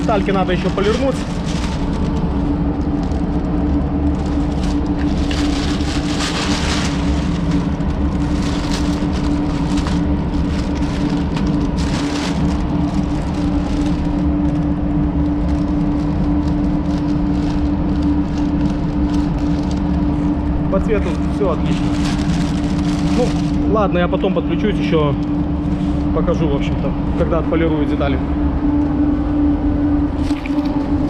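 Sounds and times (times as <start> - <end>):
ventilation fan humming: 0.0 - 31.0
masking tape and paper tearing: 4.2 - 14.1.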